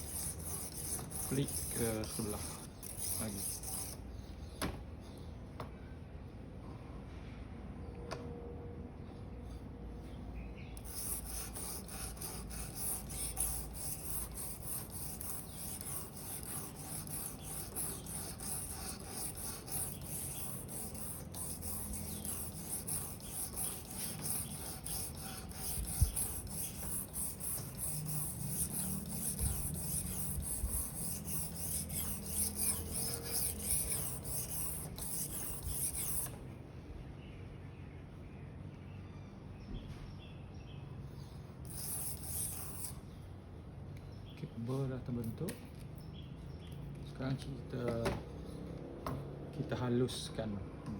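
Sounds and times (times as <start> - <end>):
knife scraping on whetstone: 0.0 - 4.0, 10.8 - 36.3, 41.7 - 43.0.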